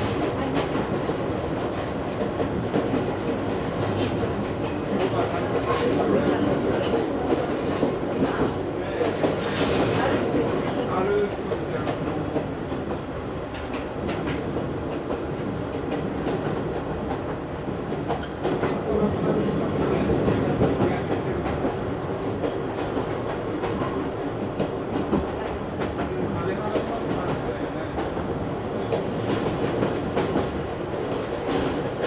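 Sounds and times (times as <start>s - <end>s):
train wheels rumbling on rail: 0.0s - 32.0s.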